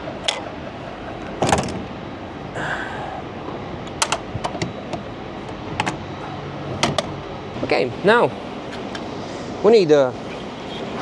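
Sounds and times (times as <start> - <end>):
metal latches clicking: 0.2 - 0.6, 1.2 - 2.0, 3.9 - 6.1, 6.7 - 7.3.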